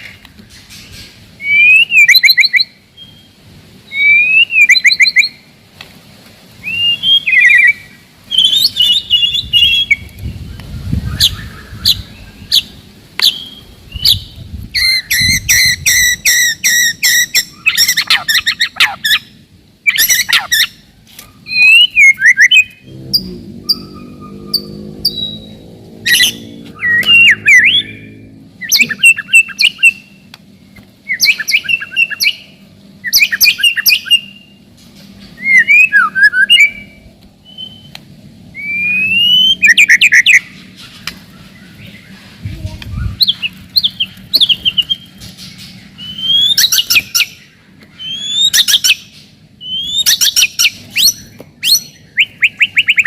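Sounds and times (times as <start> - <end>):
songbird singing trills: 0.0 - 5.5, 6.6 - 53.0.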